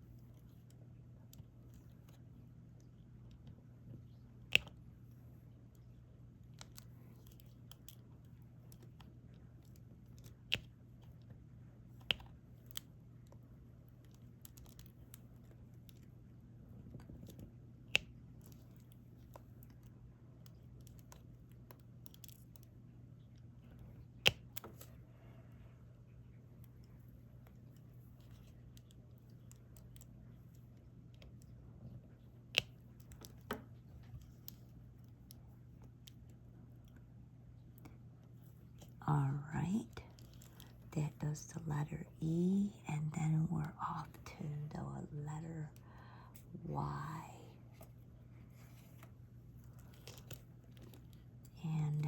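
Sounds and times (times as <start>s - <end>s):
small plastic clicks and taps: 4.4s - 4.9s, 11.9s - 13.4s, 16.9s - 22.7s, 24.1s - 25.0s.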